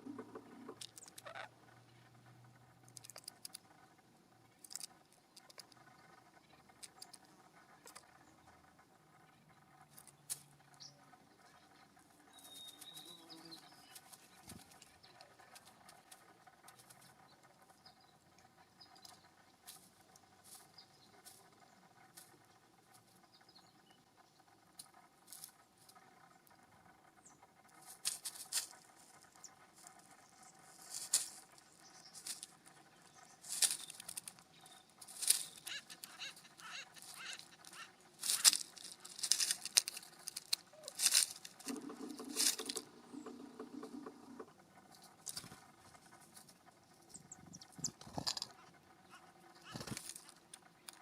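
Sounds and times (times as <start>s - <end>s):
low buzzing: 21.7s - 50.9s
birds rustling in leaf litter: 27.8s - 29.2s, 29.8s - 44.4s, 49.6s - 50.4s.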